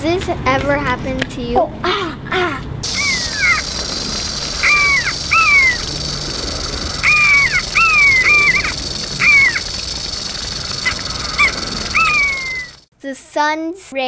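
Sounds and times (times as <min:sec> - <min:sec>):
bird cawing: 0:02.8 - 0:12.8
steady high hiss: 0:02.8 - 0:12.9.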